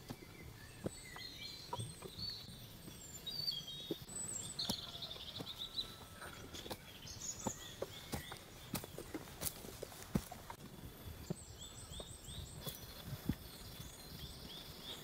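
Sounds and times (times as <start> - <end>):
small birds chirping: 0.0 - 15.0
footsteps on dry leaves: 4.2 - 15.0.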